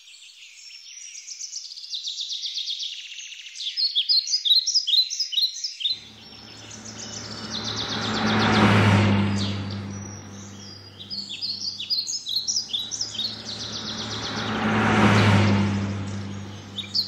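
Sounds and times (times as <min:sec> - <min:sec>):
birds chirping and trilling: 0:00.0 - 0:17.0
vehicle driving past: 0:06.0 - 0:17.0.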